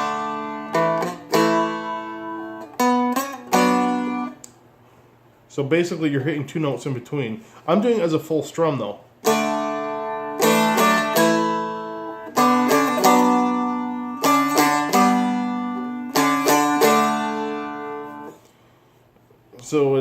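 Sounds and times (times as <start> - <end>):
acoustic guitar strumming chords: 0.0 - 4.4, 9.2 - 18.4
guitar single notes: 0.0 - 4.6, 9.2 - 18.4.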